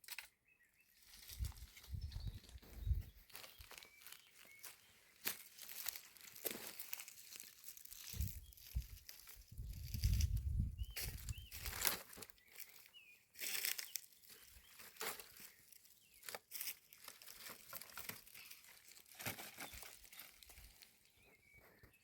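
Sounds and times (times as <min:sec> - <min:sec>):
faint bird chirps: 0:00.2 - 0:05.9, 0:07.9 - 0:16.8, 0:19.4 - 0:22.0.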